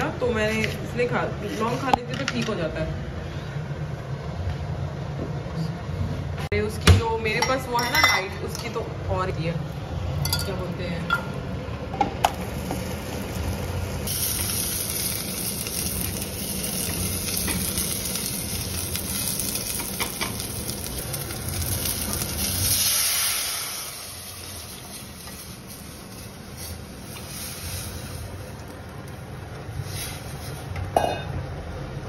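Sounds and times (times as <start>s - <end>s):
oil sizzling in pans: 12.2s - 30.9s.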